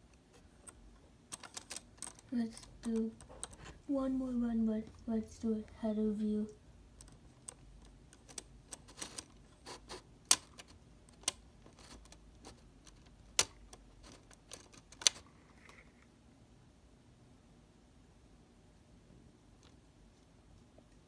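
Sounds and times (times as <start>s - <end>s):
plastic toy door clicking: 10.3s - 12.0s.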